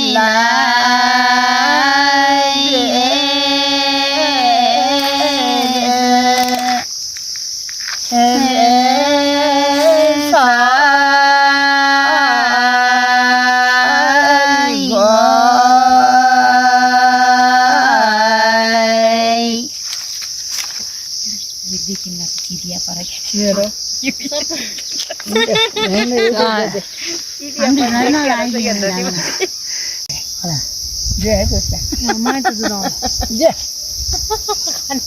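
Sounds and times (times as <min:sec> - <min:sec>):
person singing long held notes: 0:00.0 - 0:06.9, 0:08.1 - 0:19.7
crickets chirring: 0:00.0 - 0:35.0.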